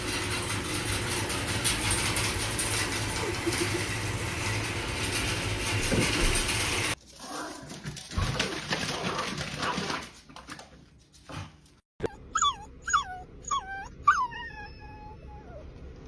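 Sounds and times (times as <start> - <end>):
dog whimpering: 12.0 - 15.7.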